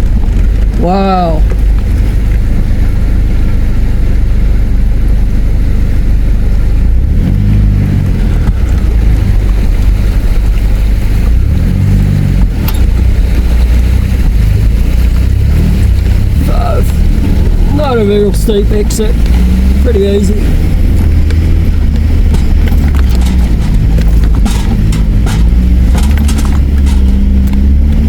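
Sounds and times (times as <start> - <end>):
engine rumbling and revving: 0.0 - 28.0.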